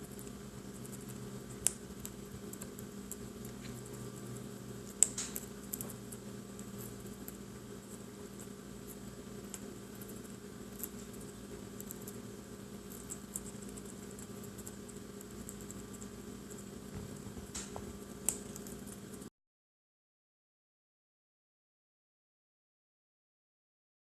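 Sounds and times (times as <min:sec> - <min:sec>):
low electrical hum: 0:00.0 - 0:19.3.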